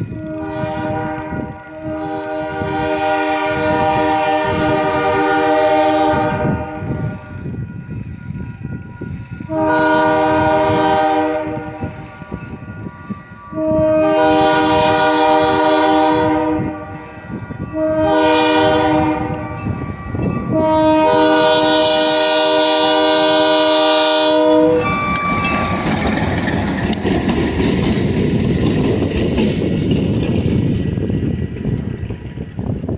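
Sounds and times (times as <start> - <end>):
wheels on rails: 0.0 - 2.6, 5.9 - 32.9
locomotive air horn blasts: 0.0 - 8.2, 9.4 - 25.9
locomotive engine passing: 0.0 - 32.9.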